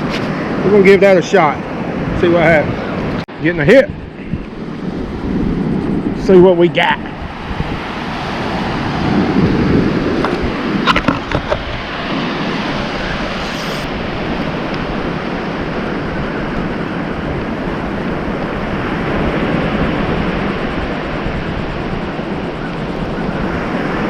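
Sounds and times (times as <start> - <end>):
wind buffeting the microphone: 0.0 - 24.0
ocean surf: 7.1 - 10.9.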